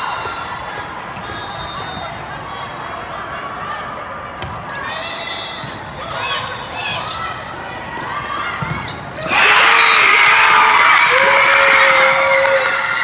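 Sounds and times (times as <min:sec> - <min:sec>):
crowd cheering and shouting: 0:09.2 - 0:13.0.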